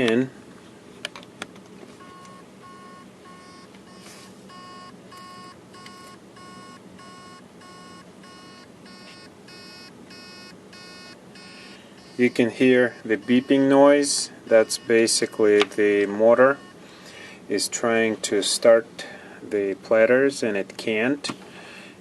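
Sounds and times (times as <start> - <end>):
hard drive beeping: 2.0 - 16.9.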